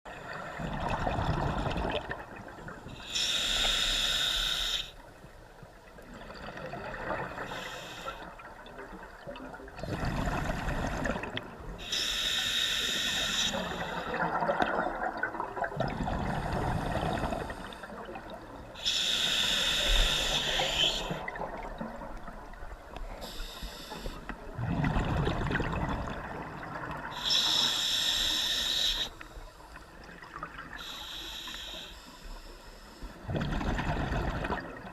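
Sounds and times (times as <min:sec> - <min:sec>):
gurgling exhaled bubbles: 0:00.4 - 0:02.7, 0:09.4 - 0:11.4, 0:14.1 - 0:18.3, 0:24.5 - 0:27.2, 0:33.3 - 0:34.9
diver inhaling through regulator: 0:03.0 - 0:05.0, 0:07.4 - 0:08.3, 0:11.8 - 0:14.2, 0:18.8 - 0:21.2, 0:23.2 - 0:24.3, 0:27.1 - 0:29.5, 0:30.8 - 0:33.2.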